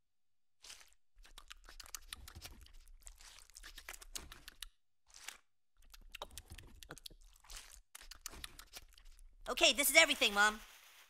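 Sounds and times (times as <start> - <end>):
crispy chicken skin crunching: 0.6 - 4.4, 5.1 - 6.0.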